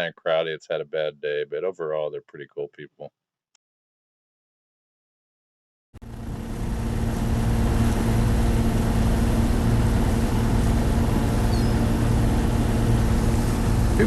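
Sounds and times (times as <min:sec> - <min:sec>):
boat engine droning: 0:06.0 - 0:14.0
rushing water noise: 0:06.9 - 0:14.0.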